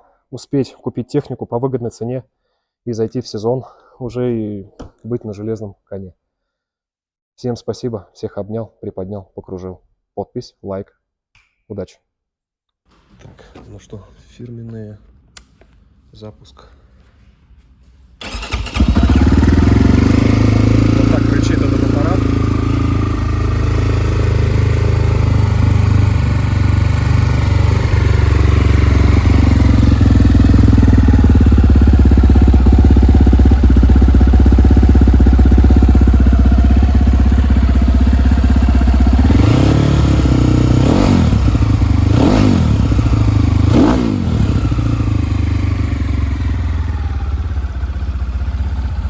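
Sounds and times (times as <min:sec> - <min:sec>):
motorcycle engine idling and revving: 0:18.2 - 0:49.0.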